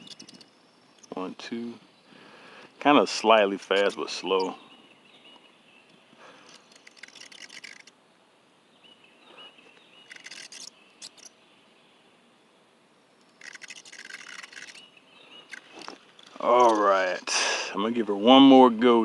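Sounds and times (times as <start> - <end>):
fishing reel clicking: 6.5 - 7.9, 13.4 - 14.8.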